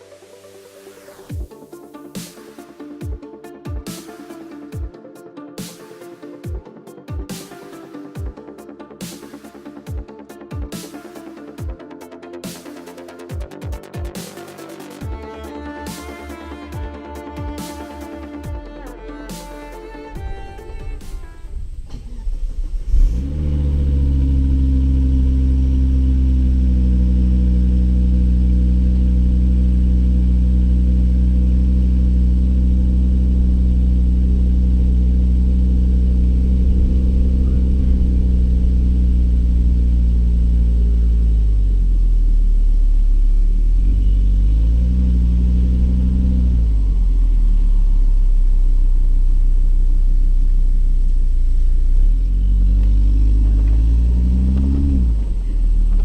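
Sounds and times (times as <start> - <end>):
car engine and exhaust driving: 14.6 - 56.0.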